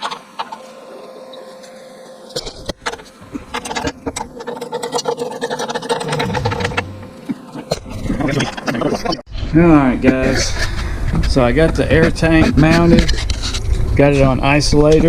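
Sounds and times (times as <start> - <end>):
machine hum: 0.0 - 9.2
knocks and clatter: 3.4 - 8.9.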